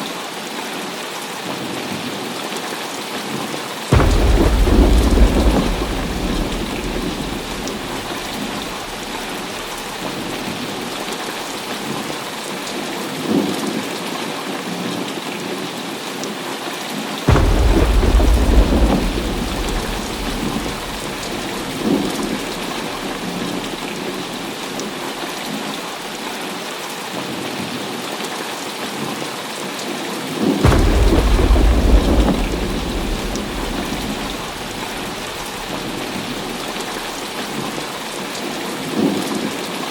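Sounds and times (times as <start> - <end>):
heavy rain falling: 0.1 - 39.9
thunder: 3.9 - 11.9, 17.3 - 25.1, 30.6 - 39.3.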